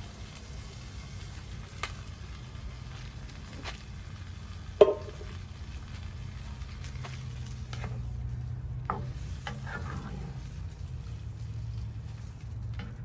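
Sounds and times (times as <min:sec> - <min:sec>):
steady low rumble: 0:00.0 - 0:13.0
utensil clanking in pot: 0:04.8 - 0:05.4.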